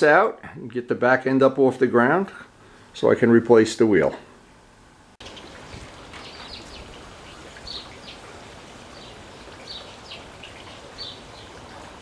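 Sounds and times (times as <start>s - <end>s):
outdoor background hiss: 0.0s - 12.0s
small birds chirping: 5.2s - 12.0s.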